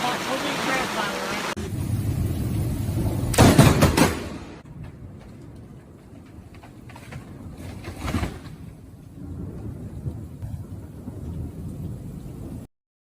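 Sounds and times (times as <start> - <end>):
thunder rumbling: 1.5 - 12.7
sharp thunder crack: 1.6 - 5.2.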